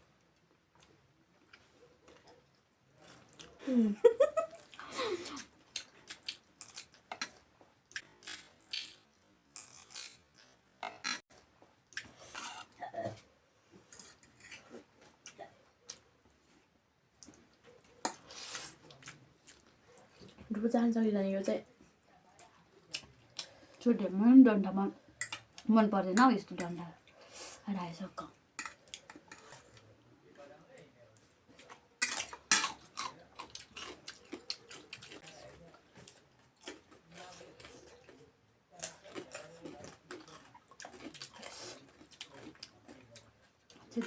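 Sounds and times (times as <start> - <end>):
chewing and crunching food: 0.0 - 3.6, 4.4 - 20.6, 21.7 - 23.9, 28.2 - 30.1, 31.1 - 44.0
cutlery clicking and scraping plate: 28.6 - 29.7, 32.0 - 33.2.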